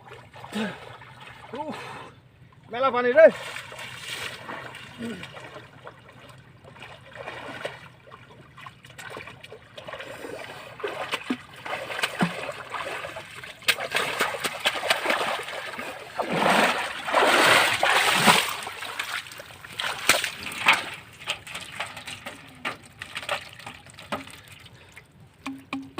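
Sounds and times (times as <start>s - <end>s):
water splashing and sloshing: 0.0s - 25.9s
knocks: 25.4s - 25.9s.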